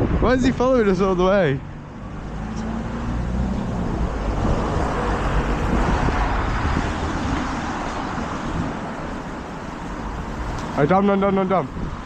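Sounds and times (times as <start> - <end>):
strong wind on microphone: 0.0 - 9.0, 11.6 - 12.0
road traffic rumble: 0.0 - 12.0.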